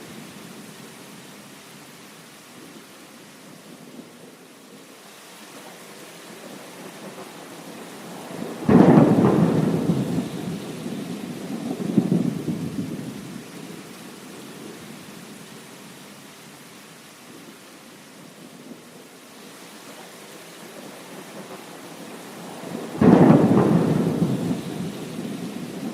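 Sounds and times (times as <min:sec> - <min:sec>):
heavy rain: 0:00.0 - 0:25.9
thunder rumbling: 0:08.0 - 0:13.4, 0:22.3 - 0:25.9.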